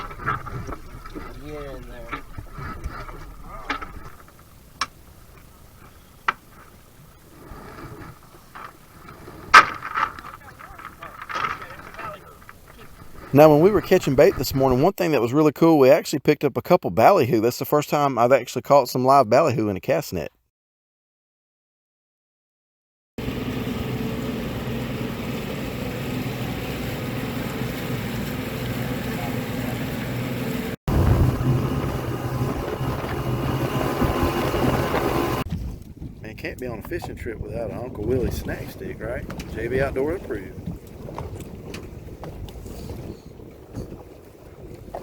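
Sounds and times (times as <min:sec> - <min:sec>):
motorboat engine running: 0:00.0 - 0:14.4, 0:23.2 - 0:45.0
rushing water noise: 0:00.0 - 0:14.9.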